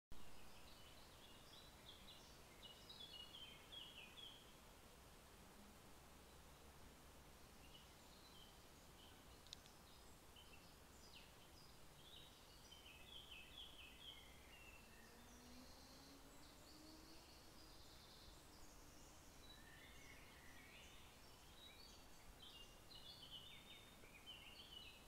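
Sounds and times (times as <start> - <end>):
birds chirping and trilling: 0.2 - 4.7, 6.0 - 25.0
sharp click: 9.4 - 9.8.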